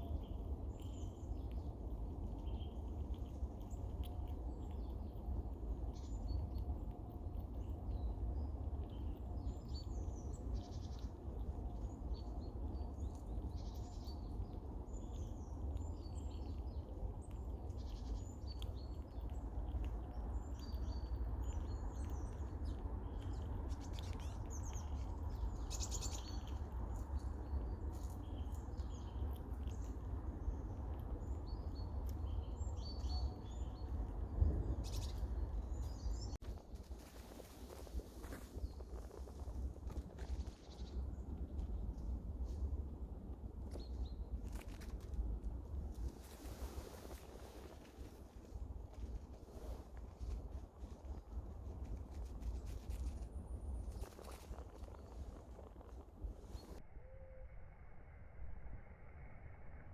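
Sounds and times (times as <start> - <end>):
low rumble: 0.0 - 37.0.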